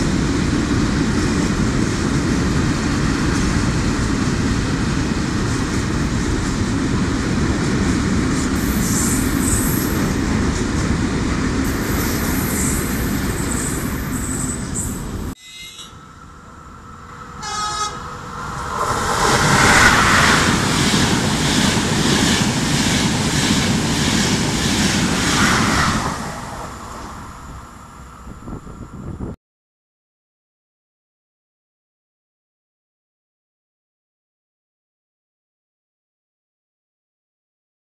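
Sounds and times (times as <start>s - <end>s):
freight train wheels rumbling: 0.0s - 29.4s
train horn toot: 15.4s - 16.1s, 17.3s - 18.1s.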